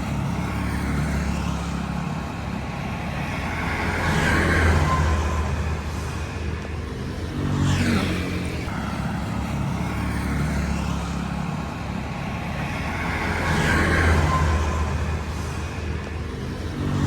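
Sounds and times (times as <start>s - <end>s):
vehicle engines running: 0.0s - 17.0s
vehicle passing by: 0.0s - 17.0s.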